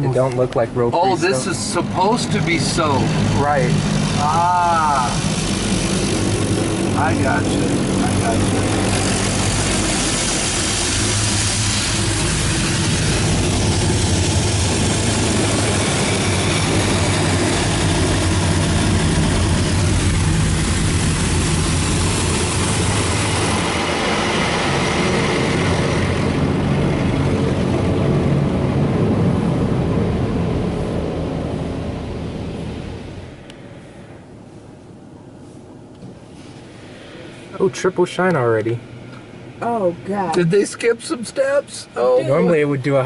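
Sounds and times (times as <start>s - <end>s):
low machine hum: 0.0s - 40.7s
car wash water spray hiss: 7.0s - 18.0s, 32.5s - 37.8s.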